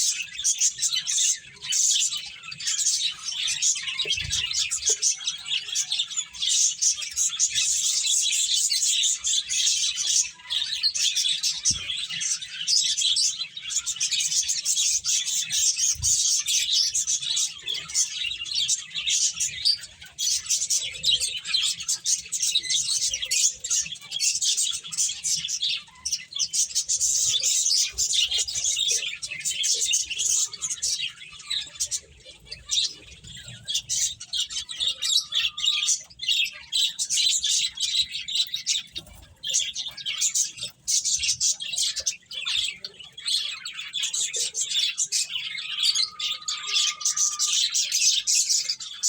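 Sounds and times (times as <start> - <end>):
finches chirping: 0.0 - 49.0.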